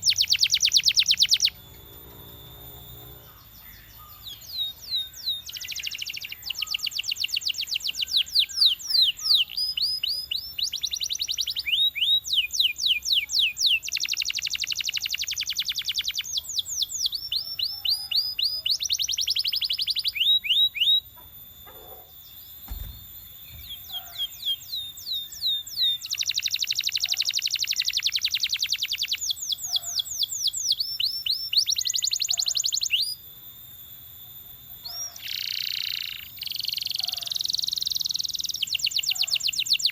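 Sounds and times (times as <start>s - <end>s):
canary singing trills: 0.0s - 33.2s, 34.1s - 39.9s
soft low thud: 22.6s - 24.0s.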